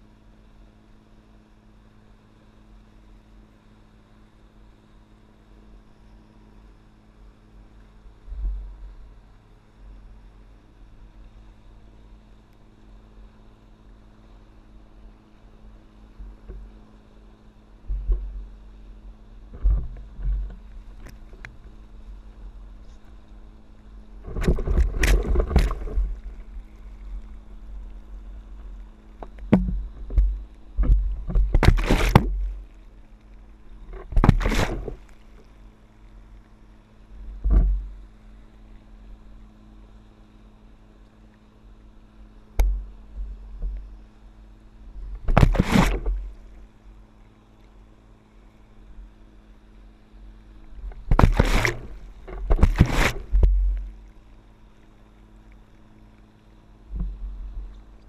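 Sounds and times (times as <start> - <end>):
steady low hum: 0.0 - 58.0
wind thumps on microphone: 24.2 - 26.7, 29.2 - 32.6, 33.9 - 35.1, 37.4 - 37.9, 45.1 - 46.3, 50.8 - 53.9
water splashing and rushing: 24.2 - 32.8, 33.7 - 35.4, 45.1 - 46.6, 50.8 - 54.0.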